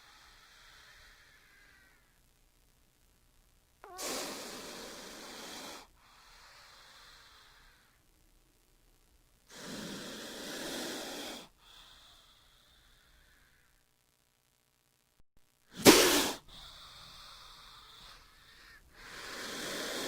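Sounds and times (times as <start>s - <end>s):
snake hissing: 0.0s - 2.0s, 3.8s - 8.0s, 9.5s - 13.6s, 15.7s - 20.0s.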